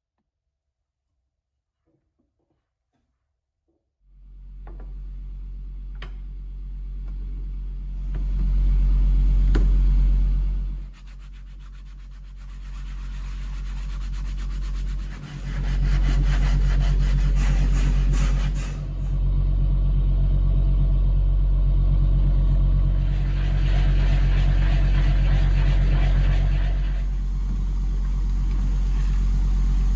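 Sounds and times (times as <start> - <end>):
abrasive rubbing: 10.9 - 19.0, 23.0 - 27.7.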